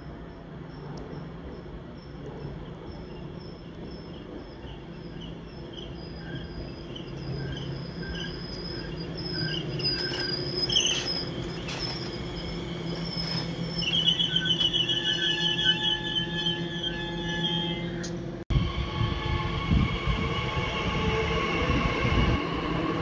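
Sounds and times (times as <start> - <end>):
fast pulsing squeal: 3.4 - 18.0
wheel squeaks: 4.0 - 18.2.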